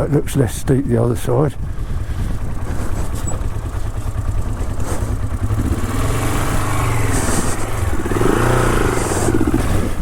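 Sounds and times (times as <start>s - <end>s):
motorcycle engine revving: 2.0s - 10.0s.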